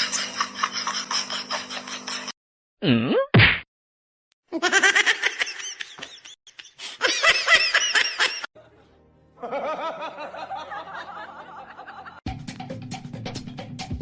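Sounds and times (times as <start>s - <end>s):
music: 8.6s - 14.0s.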